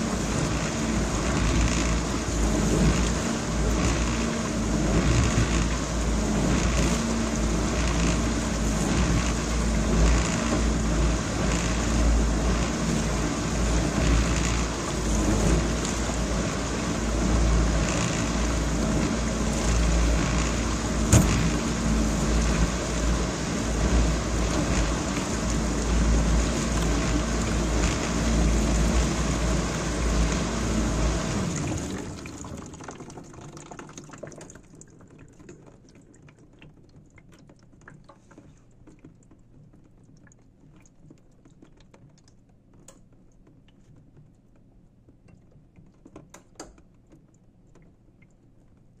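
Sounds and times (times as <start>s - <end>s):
dishwasher water spraying and sloshing: 0.0s - 35.1s.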